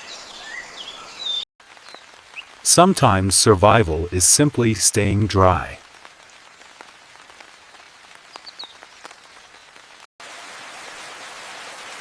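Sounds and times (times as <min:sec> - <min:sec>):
raindrops striking close by: 0:01.6 - 0:04.7, 0:05.7 - 0:12.0
rain falling: 0:01.6 - 0:12.0.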